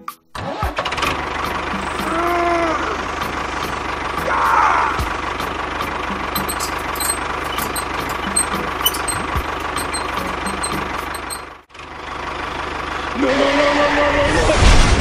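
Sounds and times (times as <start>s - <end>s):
tractor engine knocking: 6.2s - 11.6s.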